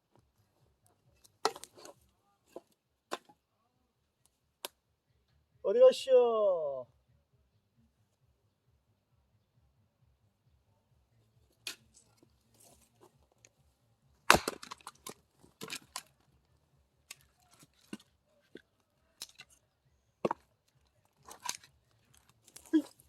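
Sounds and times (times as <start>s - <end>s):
axe striking wood: 1.4s - 3.3s, 14.2s - 16.1s
wood cracking and falling: 1.4s - 3.3s, 14.2s - 16.3s, 19.2s - 19.5s, 20.2s - 23.0s.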